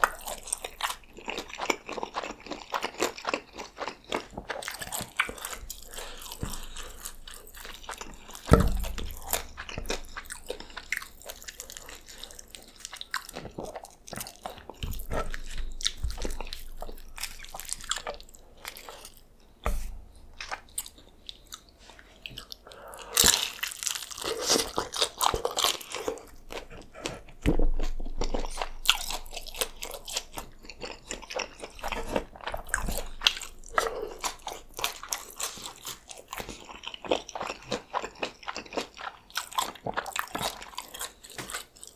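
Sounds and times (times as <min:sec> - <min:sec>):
crunchy bites and chewing: 0:00.0 - 0:41.9
low thuds: 0:05.6 - 0:11.0, 0:19.6 - 0:20.8.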